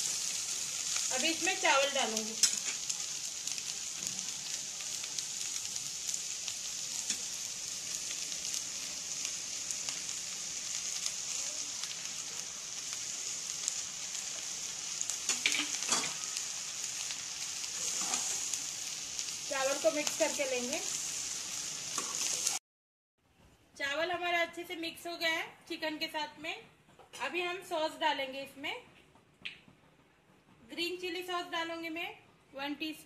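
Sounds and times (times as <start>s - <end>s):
food sizzling in a pan: 0.0s - 22.6s.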